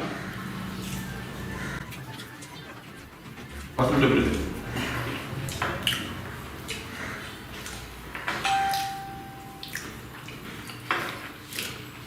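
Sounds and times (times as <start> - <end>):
wet chewing and smacking: 0.3 - 3.8, 5.4 - 8.0, 9.6 - 12.0.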